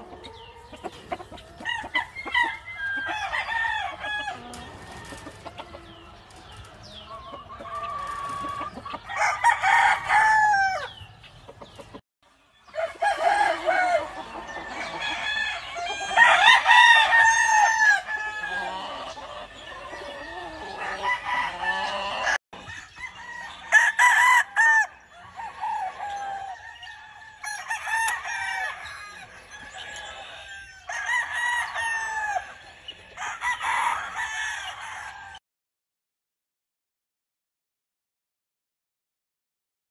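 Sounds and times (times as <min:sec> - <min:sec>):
roosters crowing: 0:00.0 - 0:11.2, 0:12.6 - 0:35.4
hens clucking: 0:00.0 - 0:12.0, 0:12.7 - 0:22.8.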